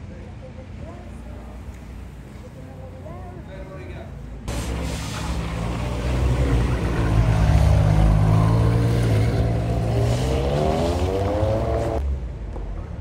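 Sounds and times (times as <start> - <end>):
sports car engine revving: 4.5 - 12.0.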